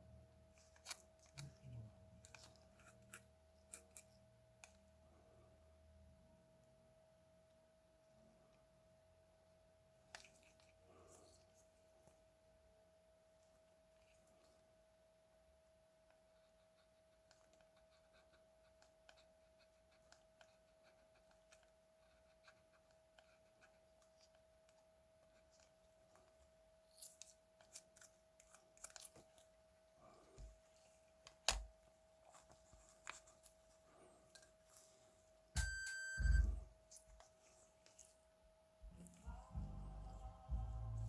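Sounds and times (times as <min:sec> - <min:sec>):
faint steady tone: 0:34.0 - 0:36.7.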